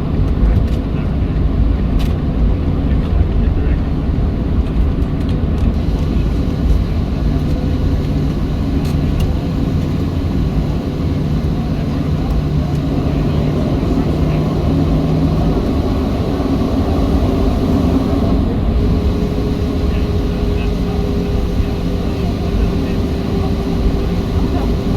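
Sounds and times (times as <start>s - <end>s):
jet engines droning: 0.0s - 24.9s
low rumble: 0.0s - 24.9s
steady hum: 5.7s - 24.9s.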